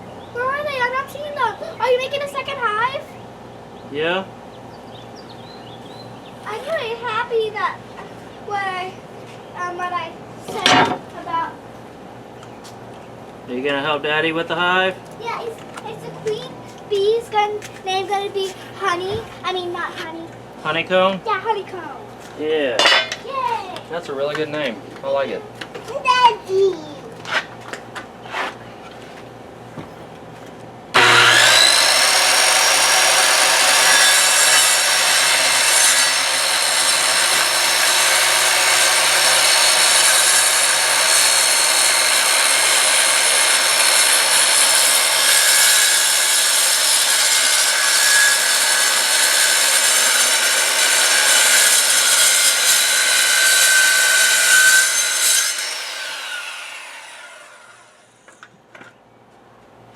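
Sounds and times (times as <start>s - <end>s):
electric power saw cutting wood: 30.9s - 58.3s
saw winding down whine: 31.0s - 58.2s.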